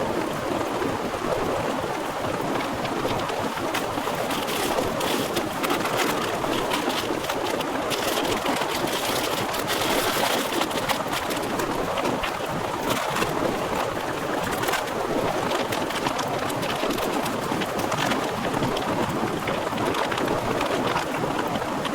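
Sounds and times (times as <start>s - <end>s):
heavy rain pouring: 2.5s - 17.1s.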